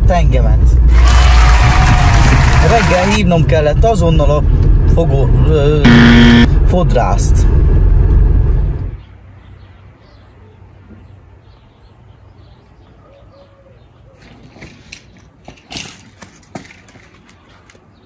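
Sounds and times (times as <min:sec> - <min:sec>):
low steady hum: 0:05.6 - 0:09.0.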